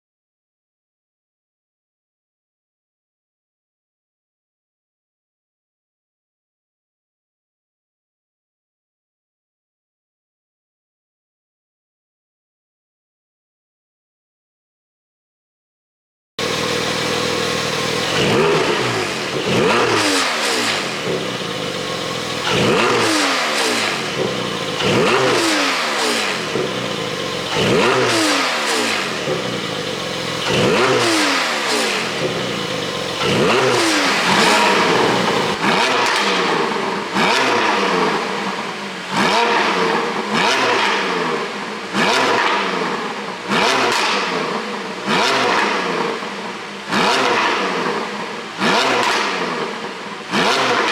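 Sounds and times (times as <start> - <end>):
car exhaust revving and popping: 16.4 - 50.9.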